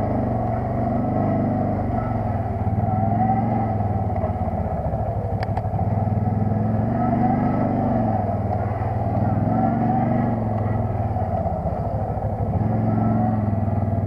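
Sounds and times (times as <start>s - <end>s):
atv engine running: 0.0s - 14.0s
faint clicks: 5.4s - 5.7s.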